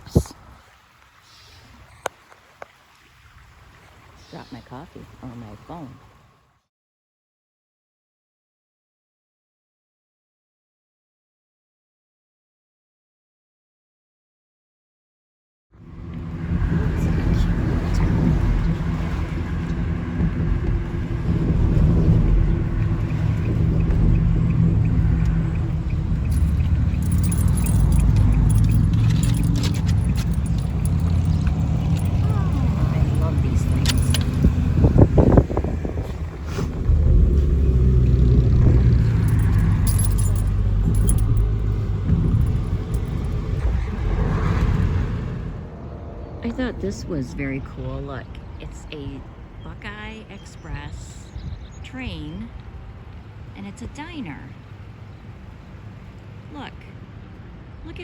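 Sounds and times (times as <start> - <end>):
van engine and road noise: 0.0 - 6.6, 15.8 - 58.0
light rattling: 16.7 - 43.6
faint regular ticking: 22.3 - 34.6.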